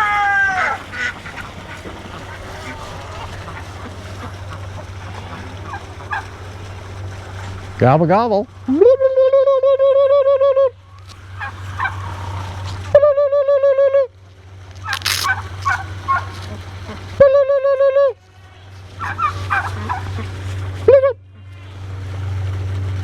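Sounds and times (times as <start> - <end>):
turkey rattling chatter: 0.0 - 8.2, 10.8 - 13.1, 14.7 - 17.4, 18.5 - 20.8
turkey gobbling: 0.0 - 14.1, 14.7 - 21.6.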